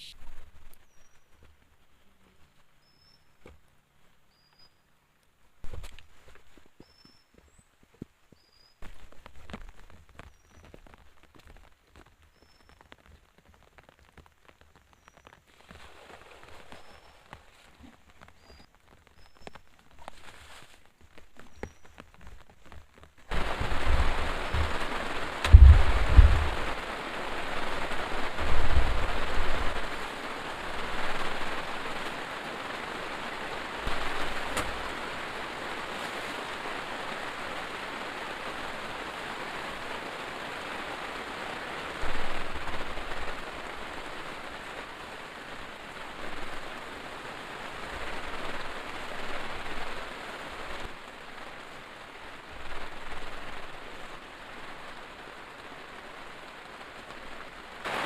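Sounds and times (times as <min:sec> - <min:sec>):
heavy rain falling: 0:08.4 - 0:58.0
low rumbles: 0:22.2 - 0:30.1.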